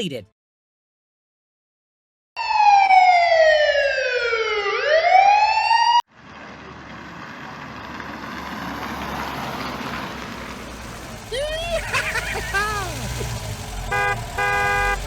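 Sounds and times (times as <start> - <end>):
siren wailing: 2.4 - 6.0.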